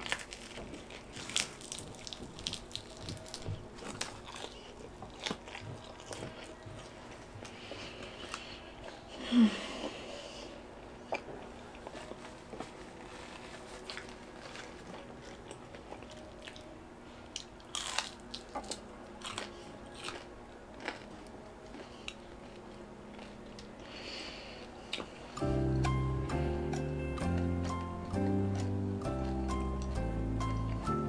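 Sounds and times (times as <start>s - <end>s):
crunching of pizza crust: 0.0s - 9.1s, 11.2s - 16.7s, 17.3s - 25.2s.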